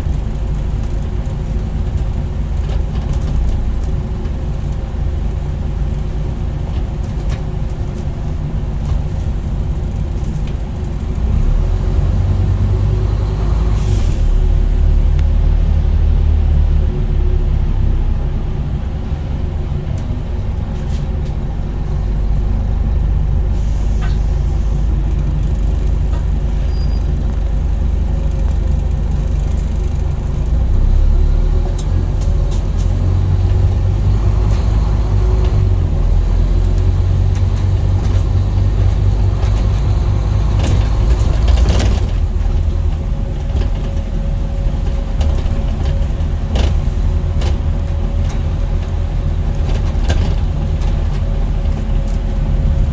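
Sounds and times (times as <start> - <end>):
bus diesel engine running: 0.0 - 52.9
air brake hiss: 13.7 - 14.5, 23.5 - 24.8.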